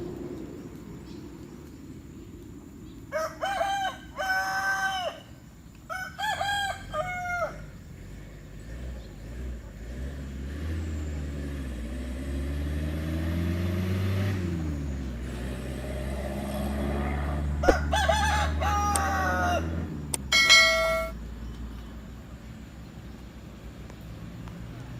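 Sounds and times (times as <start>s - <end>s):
passing vehicle hum: 0.0s - 4.1s, 5.9s - 24.9s
rooster crowing: 3.1s - 7.8s, 17.0s - 21.1s
loud steady tone: 20.3s - 21.2s.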